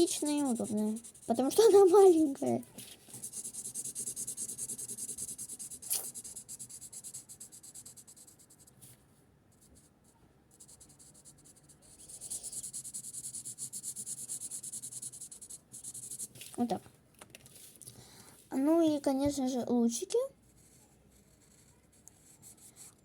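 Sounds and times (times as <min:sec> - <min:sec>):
marker scratching on paper: 0:00.0 - 0:08.7, 0:10.5 - 0:16.5, 0:20.5 - 0:23.0.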